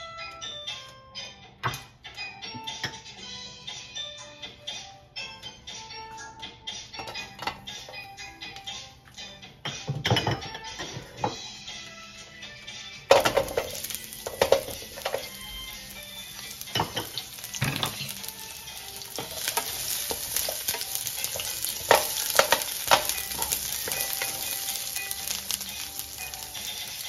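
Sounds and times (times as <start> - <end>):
wooden spatula knocking and scraping: 13.1 - 15.3, 19.1 - 24.5
onions sizzling in oil: 13.1 - 27.0.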